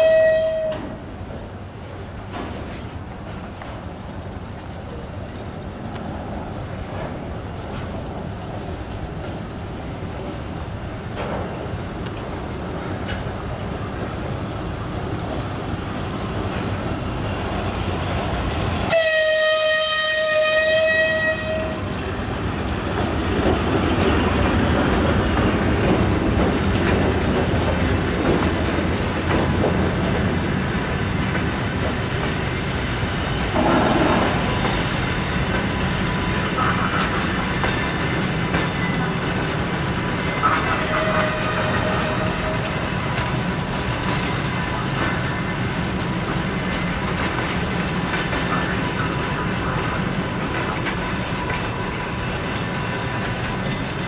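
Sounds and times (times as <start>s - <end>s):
locomotive horn: 0.0s - 1.0s, 18.9s - 22.0s, 40.4s - 42.9s
wheel rumble and rail clatter: 0.0s - 54.0s.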